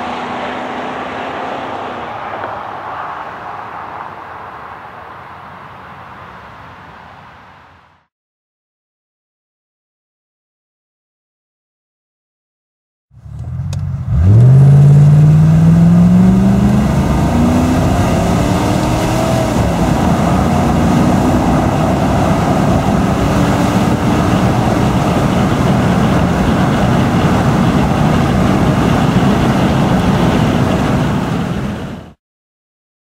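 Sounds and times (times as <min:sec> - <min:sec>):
car engine accelerating hard: 0:00.0 - 0:06.0, 0:13.2 - 0:32.1.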